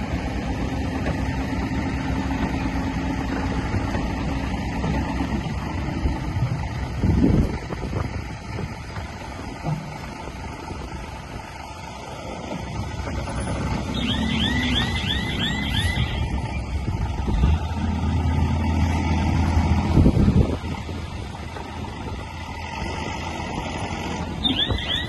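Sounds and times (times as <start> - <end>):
heavy machinery diesel engine rumble: 0.0 - 25.0
rising chirps: 13.8 - 16.8, 24.4 - 25.0.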